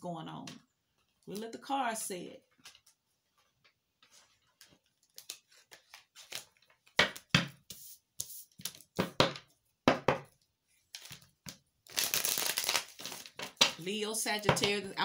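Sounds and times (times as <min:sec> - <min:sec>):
cards flicking and slapping: 0:04.7 - 0:09.4.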